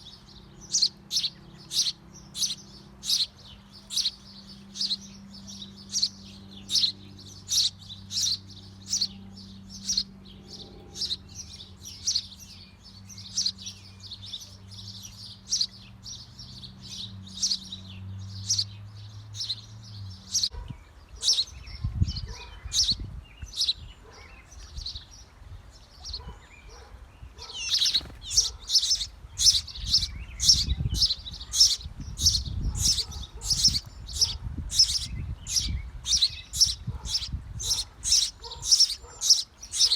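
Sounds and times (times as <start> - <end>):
low steady hum: 0.0 - 16.6
bird chirping: 0.0 - 39.9.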